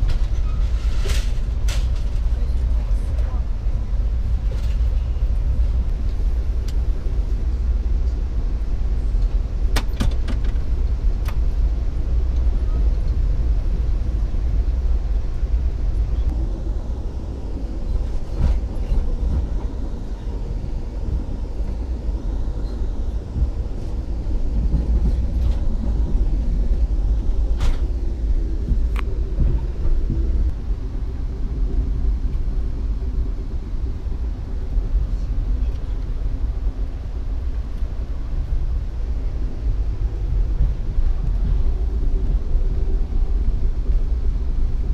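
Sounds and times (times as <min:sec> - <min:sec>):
train wheels rumbling on track: 0:00.0 - 0:44.9.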